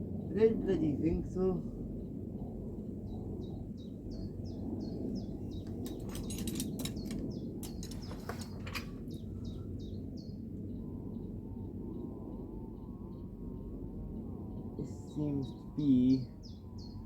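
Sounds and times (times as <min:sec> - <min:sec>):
bird chirping: 0:03.8 - 0:10.4, 0:14.8 - 0:17.0
hand tools knocking on metal: 0:05.8 - 0:08.9.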